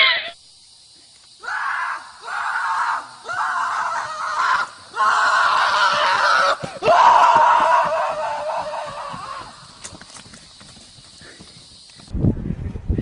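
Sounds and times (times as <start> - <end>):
loud drawn-out screams: 0.0 - 0.4, 1.4 - 9.8.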